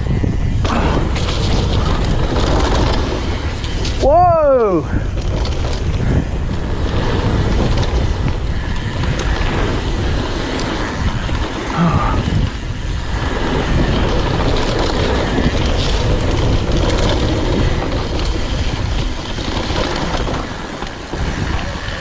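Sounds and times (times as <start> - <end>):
wind rushing over microphone: 0.0 - 22.0
bike clattering over trail: 0.1 - 22.0.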